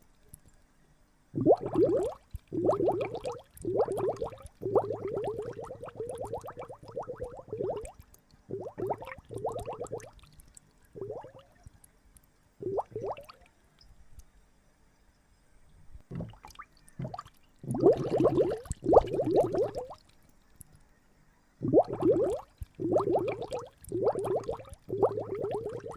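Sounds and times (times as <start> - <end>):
water gurgling and splashing: 1.4 - 10.3, 11.0 - 11.4, 12.6 - 13.4, 16.1 - 20.1, 21.6 - 25.9.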